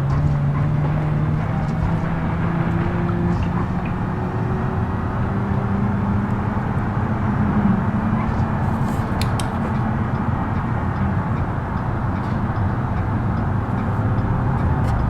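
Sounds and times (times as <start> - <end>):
van engine running: 9.7 - 15.0.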